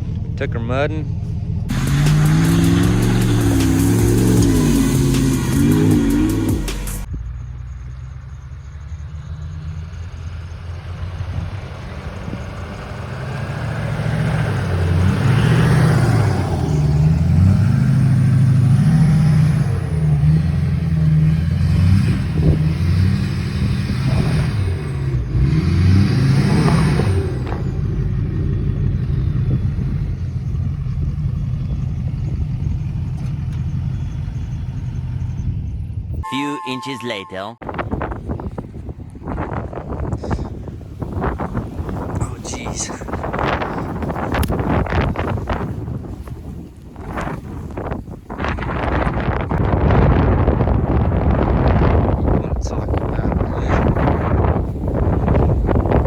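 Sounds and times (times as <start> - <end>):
truck engine revving hard: 1.7 - 7.1, 9.1 - 33.1.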